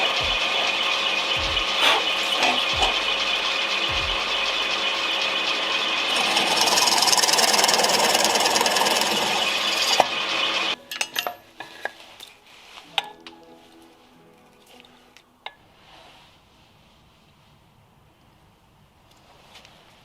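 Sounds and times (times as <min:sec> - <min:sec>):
power tool on hardwood: 0:04.8 - 0:10.4.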